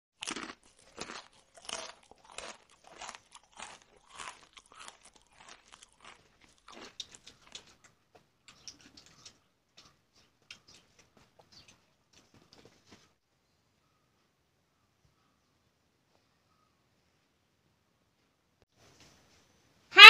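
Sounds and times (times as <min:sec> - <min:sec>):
person chewing crunchy food: 0:00.2 - 0:13.0.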